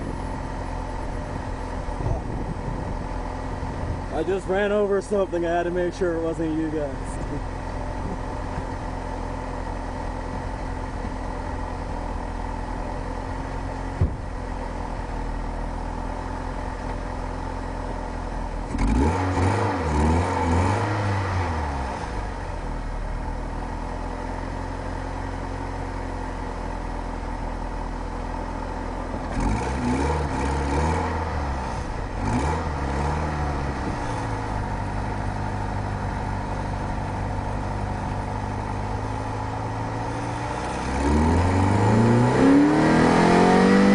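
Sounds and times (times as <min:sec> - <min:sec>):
car engine revving: 0:18.2 - 0:22.6, 0:29.0 - 0:43.9.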